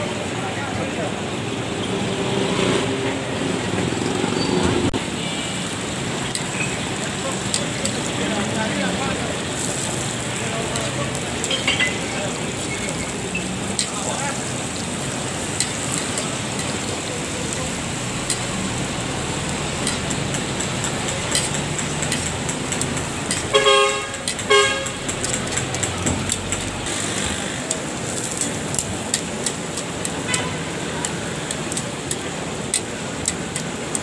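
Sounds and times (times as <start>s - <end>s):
street traffic: 0.0s - 34.0s
bread sizzling in oil: 5.0s - 34.0s
metal tongs clicking on griddle: 6.2s - 6.7s, 7.4s - 8.1s, 10.6s - 13.0s, 13.7s - 14.1s, 15.4s - 16.9s, 18.2s - 26.9s, 27.6s - 34.0s
vehicle horn toots: 23.5s - 25.0s, 30.2s - 30.7s.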